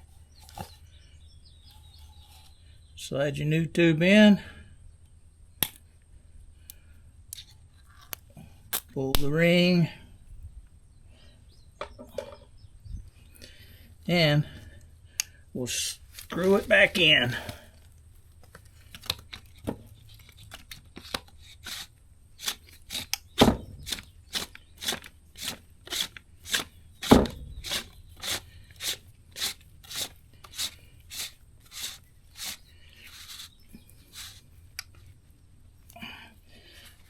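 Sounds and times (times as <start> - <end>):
threads rasping scrapes: 20.0 - 35.0.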